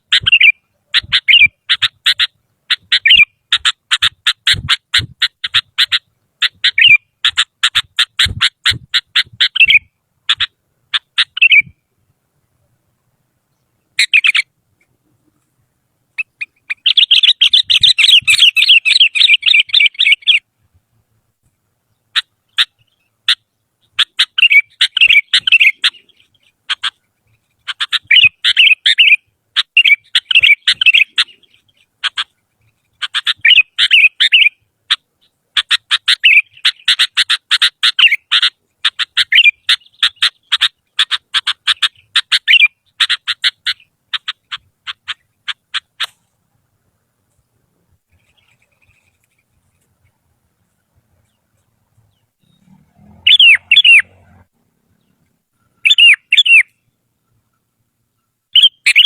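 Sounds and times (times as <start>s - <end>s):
bulbul singing chattering notes: 52.0s - 54.4s, 55.8s - 56.9s.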